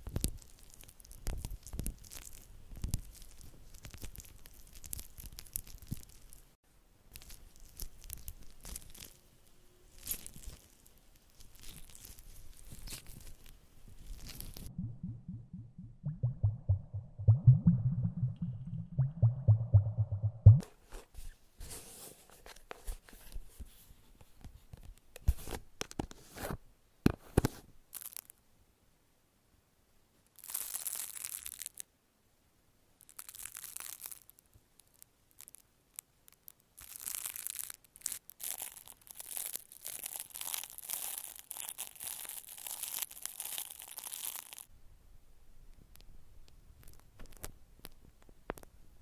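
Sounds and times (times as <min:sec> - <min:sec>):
wrapping material crinkling: 0:00.0 - 0:09.3, 0:09.9 - 0:14.7, 0:27.9 - 0:28.3, 0:30.3 - 0:31.9, 0:33.0 - 0:44.7.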